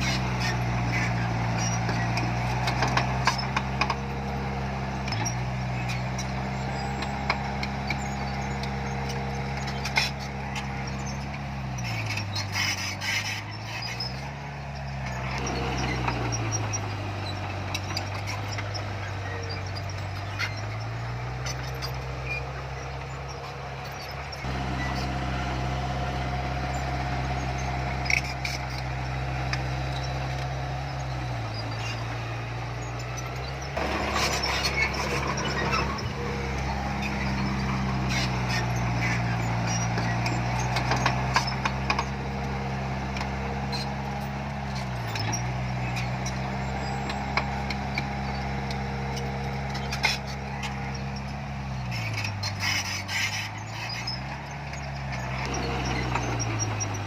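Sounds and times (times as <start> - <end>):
heavy machinery diesel engine: 0.0 - 57.0
metallic clanks: 33.0 - 42.2.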